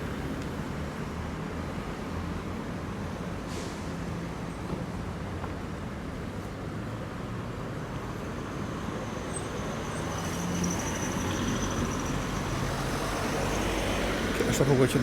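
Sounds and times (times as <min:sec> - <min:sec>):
passing cars and buses: 0:00.0 - 0:15.0.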